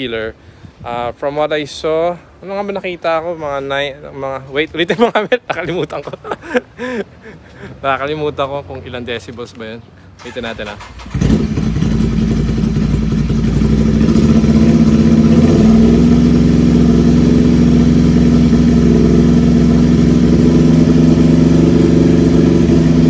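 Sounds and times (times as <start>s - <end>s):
loud motorcycle engine revving: 10.8s - 23.0s.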